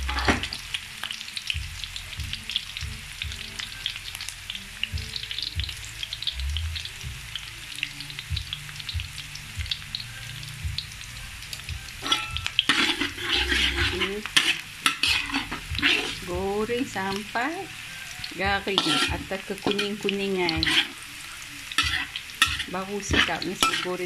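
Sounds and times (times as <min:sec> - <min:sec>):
spatula scraping a wok: 0:00.0 - 0:00.6, 0:12.0 - 0:16.4, 0:17.8 - 0:24.0
aromatics sizzling in hot oil: 0:00.0 - 0:24.0.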